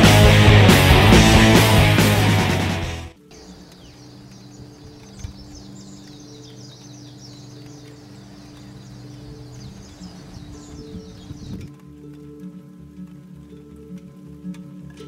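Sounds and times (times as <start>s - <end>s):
small birds chirping: 3.2s - 11.9s.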